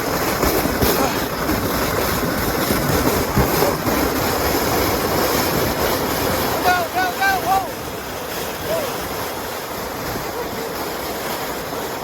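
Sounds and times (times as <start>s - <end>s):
sled scraping on ice: 0.0s - 7.6s.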